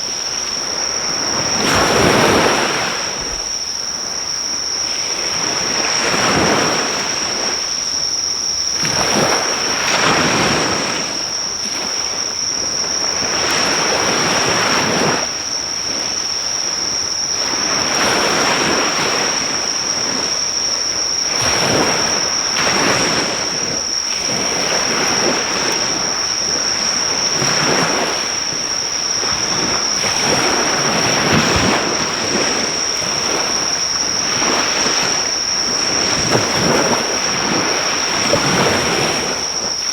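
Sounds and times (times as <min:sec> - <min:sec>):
surf breaking on shore: 0:00.0 - 0:07.8, 0:16.8 - 0:39.9
high-pitched insect trill: 0:00.0 - 0:39.9.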